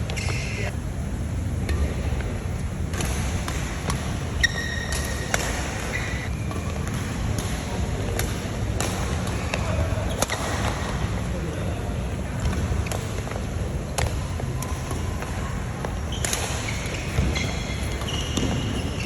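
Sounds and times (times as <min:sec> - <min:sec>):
shoes squeaking on court: 0:00.0 - 0:00.7, 0:04.3 - 0:07.2, 0:15.9 - 0:19.0
racket hitting shuttlecock: 0:02.9 - 0:10.9, 0:16.1 - 0:17.4.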